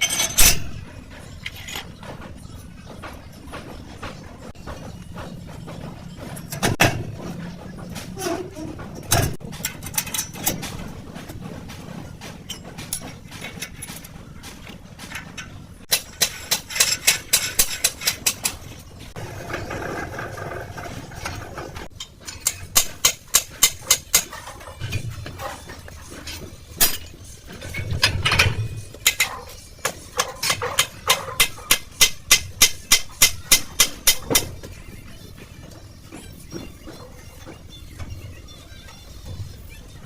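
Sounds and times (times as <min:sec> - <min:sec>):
hammer tapping on metal: 0:29.8 - 0:34.6.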